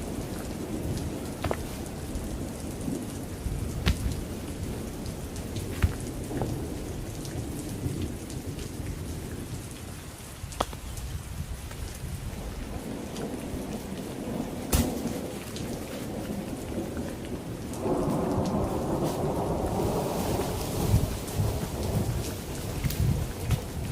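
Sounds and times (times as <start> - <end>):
rumbling thunder: 0.0 - 9.8, 11.4 - 23.9
heavy rain falling: 0.0 - 23.9
sharp thunder cracks: 17.8 - 23.2.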